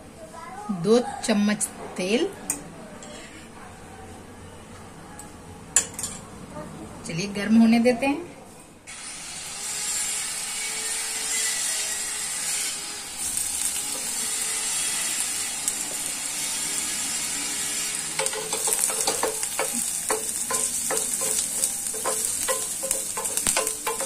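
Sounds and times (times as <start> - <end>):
garlic sizzling in hot oil: 12.0 - 24.0
wooden spatula scraping a pan: 18.2 - 24.0.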